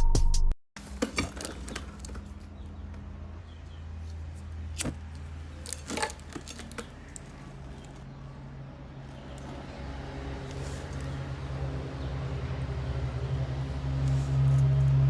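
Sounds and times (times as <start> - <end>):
metal parts clinking: 4.8 - 8.0.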